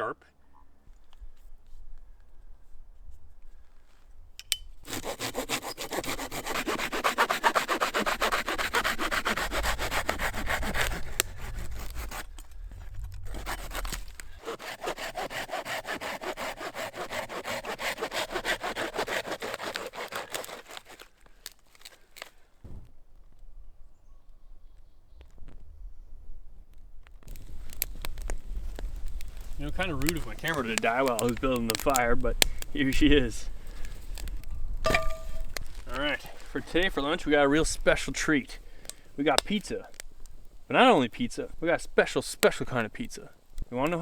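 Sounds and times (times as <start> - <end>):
hand saw cutting wood: 4.8 - 12.6, 13.2 - 22.3, 29.3 - 32.6, 34.9 - 37.2.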